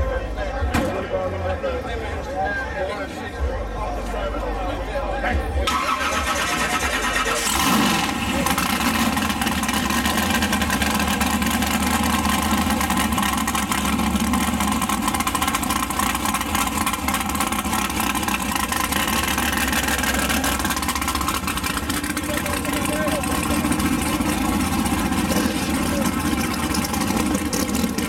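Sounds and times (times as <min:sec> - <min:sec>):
loud car engine idling: 0:05.6 - 0:28.0.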